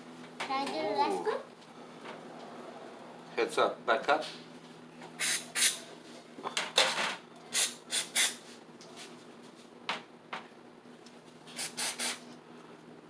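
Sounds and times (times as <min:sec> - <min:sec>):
faint steady hum: 0:00.0 - 0:13.0
aerosol spray hisses: 0:05.2 - 0:05.8, 0:11.6 - 0:12.2.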